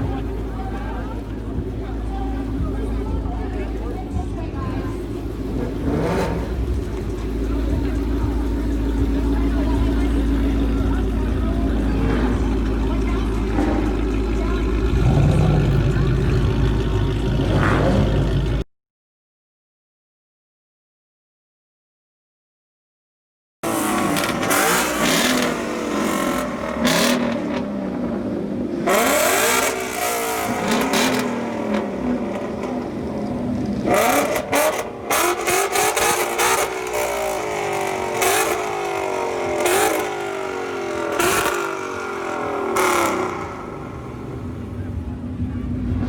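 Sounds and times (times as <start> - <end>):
car engine revving hard: 5.4 - 8.3, 8.9 - 18.6, 23.6 - 44.8.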